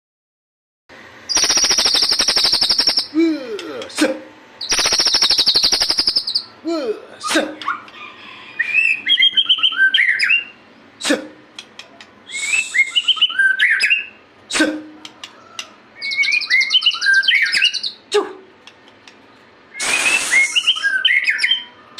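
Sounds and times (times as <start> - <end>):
bird singing trills and whistles: 1.3 - 3.2, 4.6 - 6.6, 8.6 - 10.6, 11.8 - 14.2, 15.1 - 18.1, 19.7 - 21.9.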